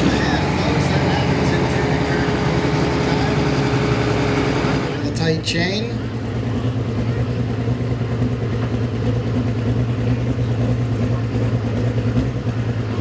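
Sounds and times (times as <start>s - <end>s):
diesel truck engine droning: 0.0s - 13.0s.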